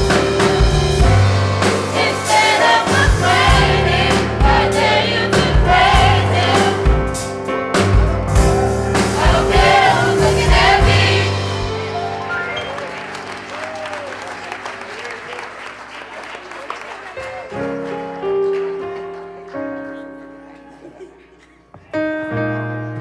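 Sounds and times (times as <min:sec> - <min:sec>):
drum hits: 0:00.0 - 0:12.1
bass notes: 0:00.0 - 0:12.9
gospel choir singing: 0:01.0 - 0:07.3, 0:08.4 - 0:12.7.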